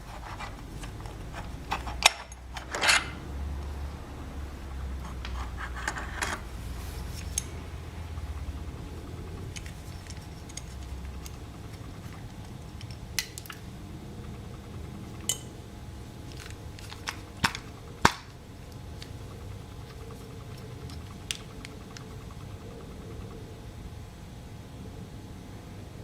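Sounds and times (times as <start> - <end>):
low steady hum: 0.0 - 26.0
metal tools clinking: 1.7 - 3.2.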